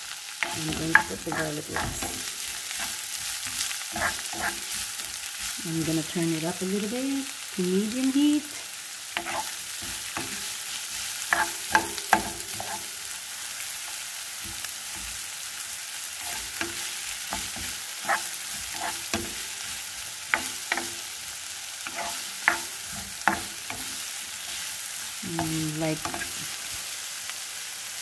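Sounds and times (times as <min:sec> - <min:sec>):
ginger and onion sizzling in pan: 0:00.0 - 0:28.0
utensil scraping against pan: 0:00.4 - 0:06.1, 0:09.2 - 0:13.1, 0:16.1 - 0:26.8.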